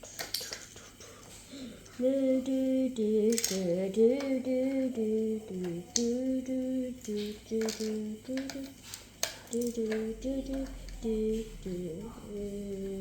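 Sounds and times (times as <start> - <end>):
plastic click: 3.3 - 4.4, 7.0 - 10.9.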